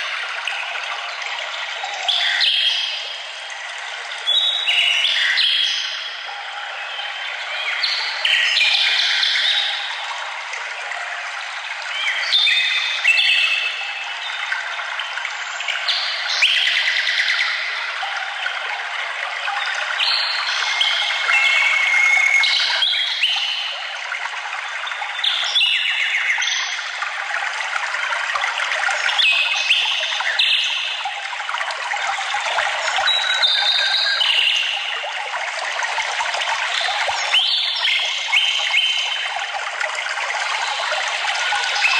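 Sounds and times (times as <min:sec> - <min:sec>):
stream trickling: 0:00.0 - 0:41.9.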